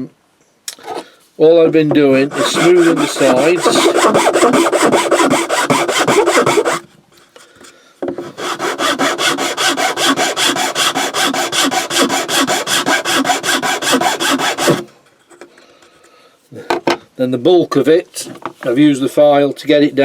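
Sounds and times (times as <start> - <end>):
file rasping against wood: 2.2 - 6.8, 8.2 - 14.8.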